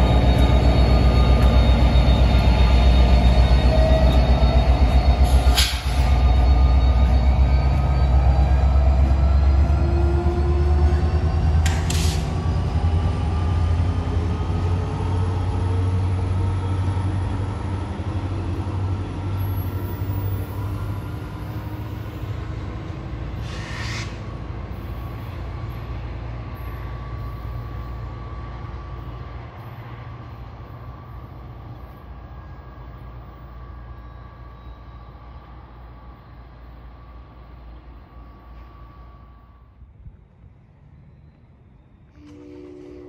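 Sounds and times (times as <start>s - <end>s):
diesel locomotive engine rumble: 0.0s - 43.0s
train rolling noise: 0.0s - 43.0s
short high-pitched hisses: 23.4s - 24.2s.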